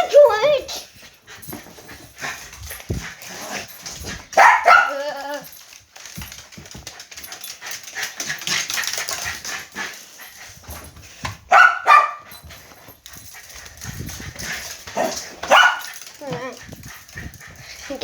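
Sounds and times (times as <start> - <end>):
dog barking: 4.4 - 5.0, 11.5 - 12.3, 15.0 - 16.0.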